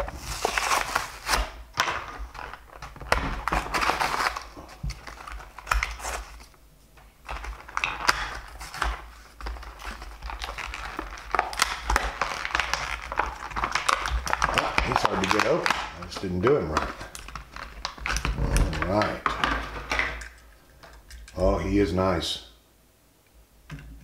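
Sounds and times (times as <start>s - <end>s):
packaging being torn: 0.0s - 6.6s, 7.2s - 20.2s
plastic packaging crinkling: 0.0s - 21.4s.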